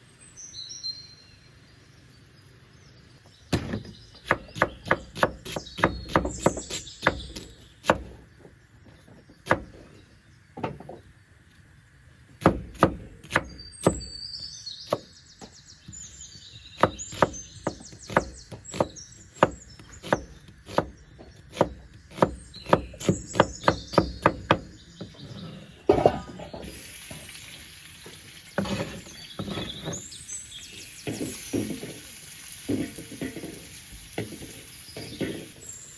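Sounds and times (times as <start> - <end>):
blade chopping on wooden board: 3.5 - 8.2, 9.4 - 9.9, 12.4 - 14.2, 14.9 - 15.1, 16.8 - 25.2.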